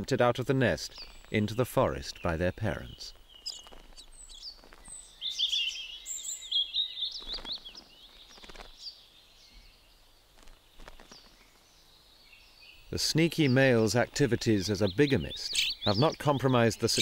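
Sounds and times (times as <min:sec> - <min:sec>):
small songbirds chirping: 0:00.0 - 0:17.0.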